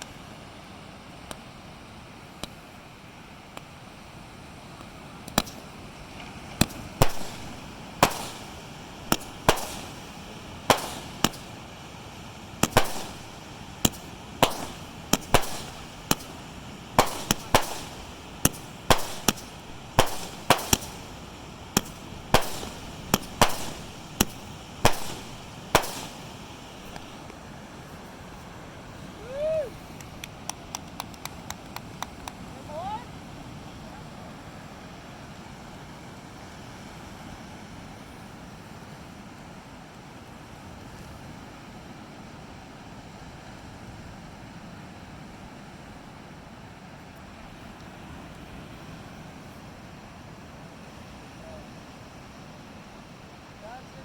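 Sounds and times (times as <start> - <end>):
fireworks banging: 5.2 - 27.4
steady background rush: 6.7 - 11.7, 12.6 - 27.3.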